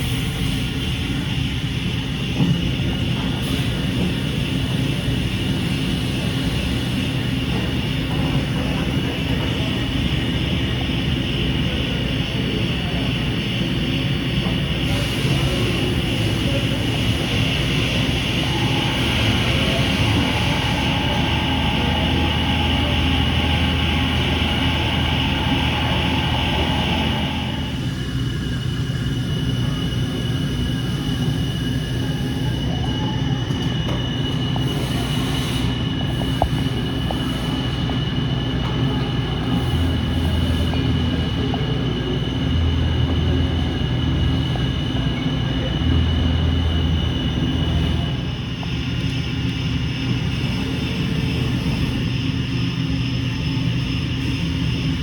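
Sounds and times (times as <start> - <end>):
milling machine humming and whining: 0.0 - 55.0
milling machine running: 14.3 - 27.9.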